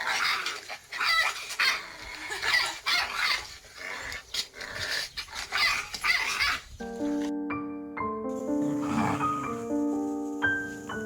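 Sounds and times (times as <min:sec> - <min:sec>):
dogs snarling and yapping: 0:00.0 - 0:06.8, 0:08.6 - 0:09.6.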